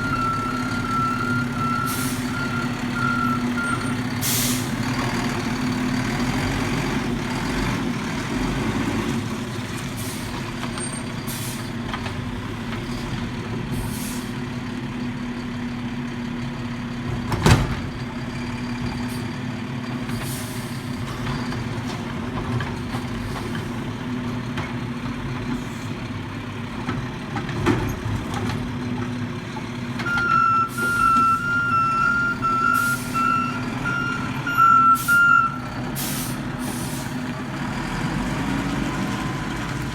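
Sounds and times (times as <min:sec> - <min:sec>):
truck backup alarm beeping: 0:00.0 - 0:04.7, 0:30.0 - 0:37.0
diesel engine running: 0:00.0 - 0:39.9
short air hisses: 0:04.2 - 0:04.7, 0:36.0 - 0:37.2.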